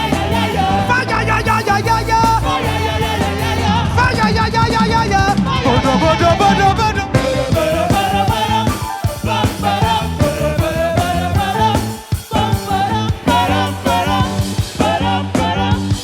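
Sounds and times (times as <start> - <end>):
upbeat gospel band music: 0.0 - 16.0.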